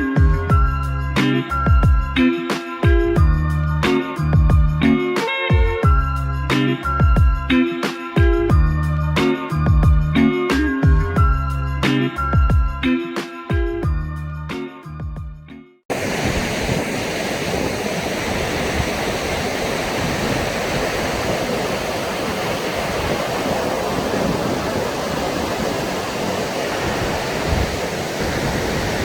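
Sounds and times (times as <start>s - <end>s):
steady rushing noise: 15.9s - 29.0s.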